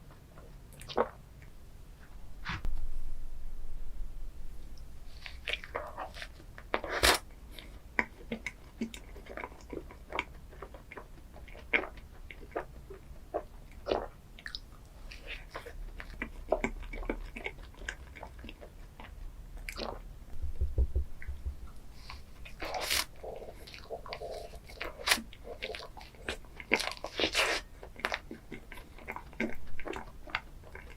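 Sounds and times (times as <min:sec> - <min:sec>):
chewing with sharp crackles: 0:05.1 - 0:20.1, 0:22.0 - 0:30.9.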